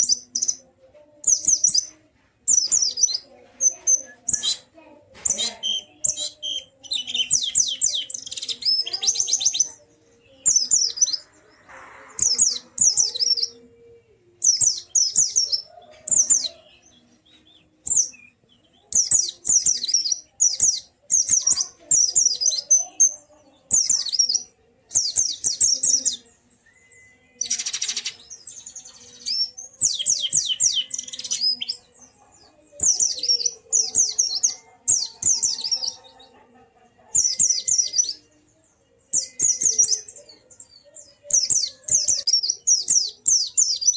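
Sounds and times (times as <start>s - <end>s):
bird high rapid chirping: 0.0s - 0.6s, 1.2s - 13.6s, 14.4s - 36.4s, 37.1s - 38.2s, 39.1s - 43.9s.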